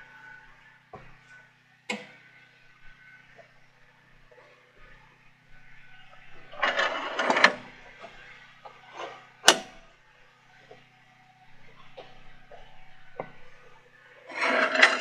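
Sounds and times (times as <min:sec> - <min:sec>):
sharp knock: 0:09.5 - 0:09.7.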